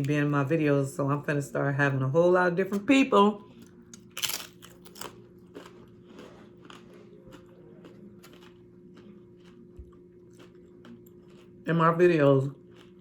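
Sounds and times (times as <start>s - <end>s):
chewing crunchy chips: 3.4s - 13.0s.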